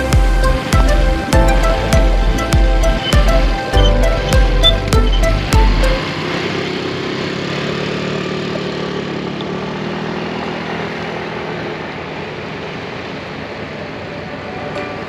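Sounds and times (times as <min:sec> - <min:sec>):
boat engine humming: 0:00.0 - 0:07.9.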